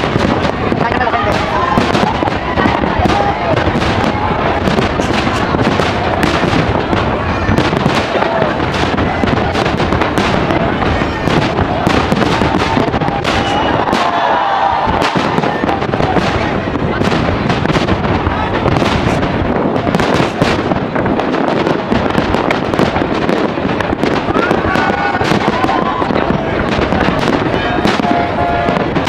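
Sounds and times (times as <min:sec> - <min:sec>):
fireworks bursts and crackling: 0:00.0 - 0:29.0.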